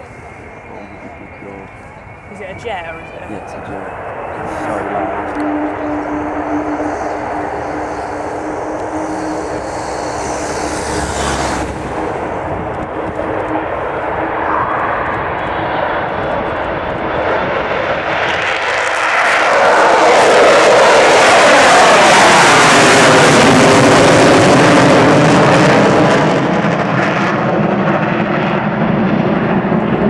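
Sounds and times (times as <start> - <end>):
steady low tone: 0.0 - 17.0
loud jet engine rush: 0.0 - 30.0.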